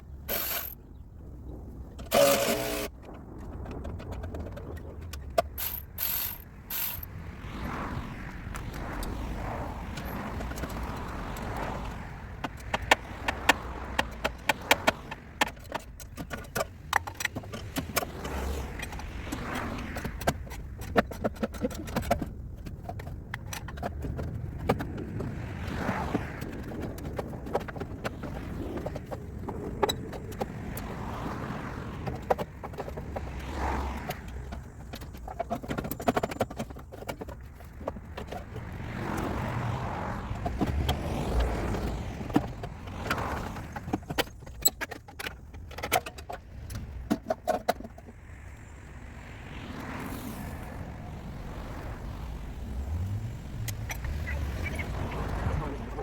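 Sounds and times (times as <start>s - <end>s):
hand tools and metal clinking: 0.2s - 0.8s, 2.0s - 3.2s, 3.8s - 7.1s, 12.4s - 19.1s, 34.0s - 38.5s, 42.2s - 48.1s
sharp clicks and knocks: 1.9s - 7.1s, 9.9s - 25.5s, 32.0s - 39.3s, 40.3s - 48.2s.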